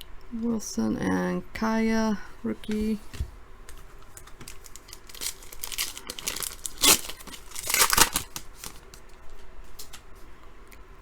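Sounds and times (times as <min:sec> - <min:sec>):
foil wrapper crinkling and ripping: 0:03.7 - 0:10.0.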